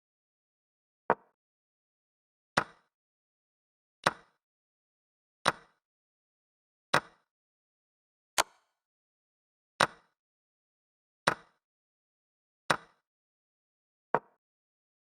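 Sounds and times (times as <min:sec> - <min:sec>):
chess piece clicking on board: 0:08.4 - 0:08.6.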